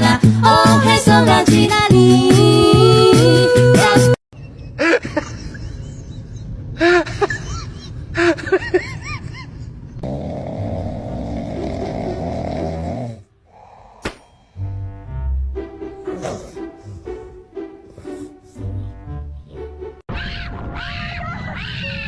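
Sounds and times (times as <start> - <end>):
steady snore-like noise: 10.0 - 14.6
animal squeaky calls: 20.1 - 22.0.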